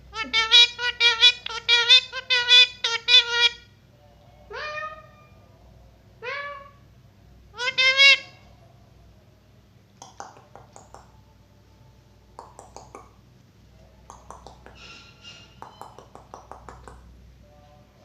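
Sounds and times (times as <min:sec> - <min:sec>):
parrot chirps: 0:00.1 - 0:03.7, 0:07.6 - 0:08.4, 0:12.4 - 0:13.2, 0:14.1 - 0:17.1
parrot clicks and taps: 0:10.0 - 0:11.1, 0:12.4 - 0:13.1, 0:14.1 - 0:14.9, 0:15.6 - 0:17.0.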